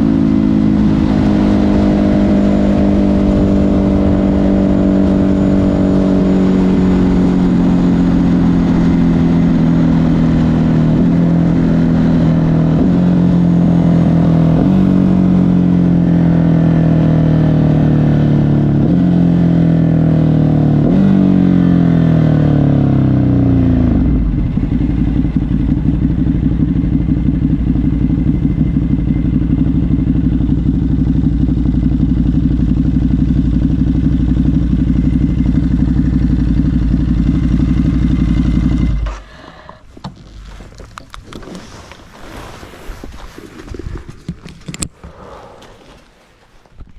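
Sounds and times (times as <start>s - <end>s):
motorcycle engine idling: 24.0s - 40.2s.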